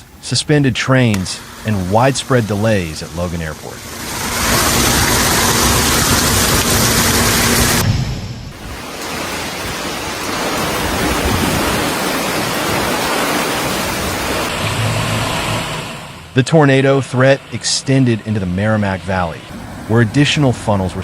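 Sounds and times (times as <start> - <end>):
storm water rushing: 0.0 - 21.0
heavy rain: 1.0 - 16.3.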